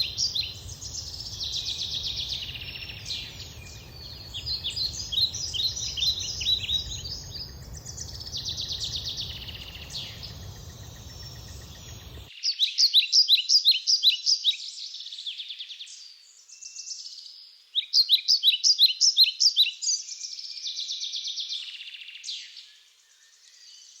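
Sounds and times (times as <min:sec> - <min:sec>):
low background rumble: 0:00.0 - 0:12.3
songbirds singing: 0:00.0 - 0:24.0.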